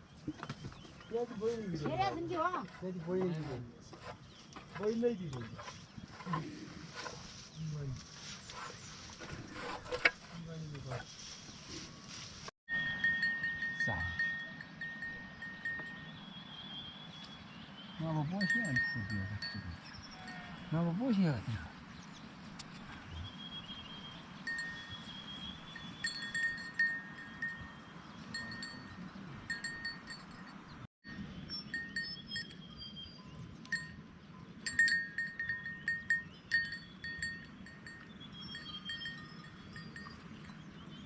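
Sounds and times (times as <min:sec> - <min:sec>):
animal bells clinking: 0:12.7 - 0:16.4, 0:18.2 - 0:21.2, 0:24.4 - 0:41.0.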